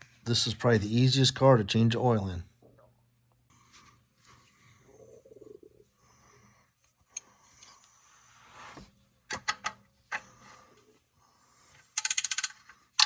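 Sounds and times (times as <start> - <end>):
metal clicks and knocks: 9.3 - 10.2
wrench ratcheting clicks: 12.0 - 12.7.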